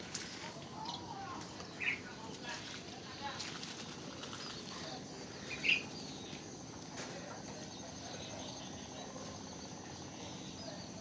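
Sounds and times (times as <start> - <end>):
birds chirping: 0.0 - 11.0
insect trill: 3.9 - 11.0.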